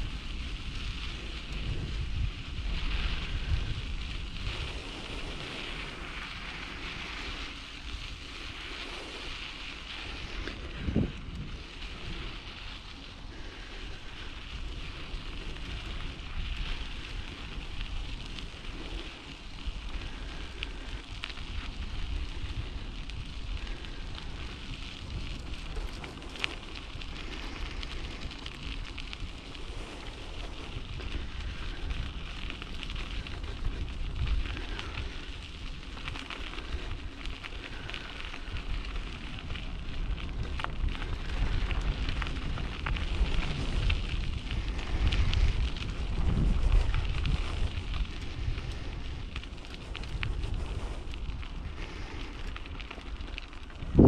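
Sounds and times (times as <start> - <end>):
bicycle tyres rolling on rough track: 0.0 - 54.0
wind buffeting microphone: 0.0 - 54.0.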